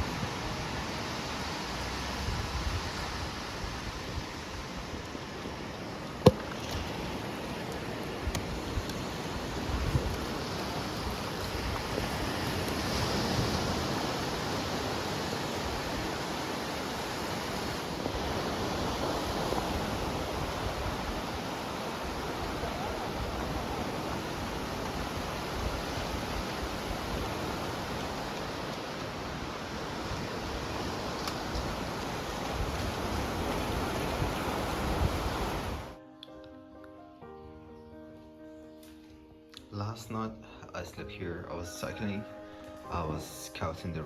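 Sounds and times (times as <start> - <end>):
surf breaking on a beach: 0.0 - 36.0
wind: 0.0 - 44.0.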